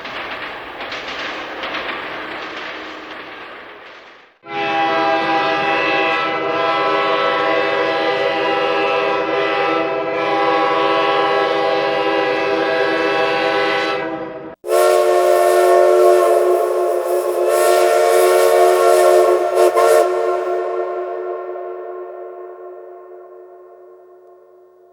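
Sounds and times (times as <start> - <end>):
multi-tone train horn: 4.4 - 24.9.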